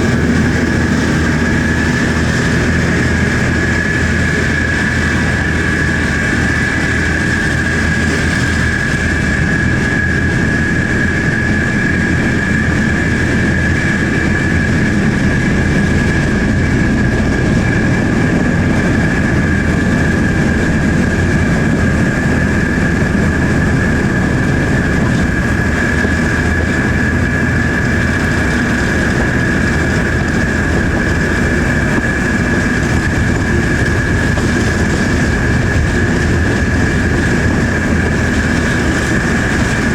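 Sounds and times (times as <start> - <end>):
diesel locomotive engine rumbling: 0.0 - 39.9
high steady whine: 0.0 - 39.9.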